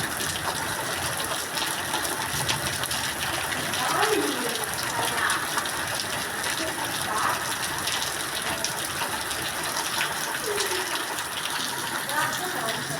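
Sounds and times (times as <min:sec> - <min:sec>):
heavy rain falling: 0:00.0 - 0:12.9.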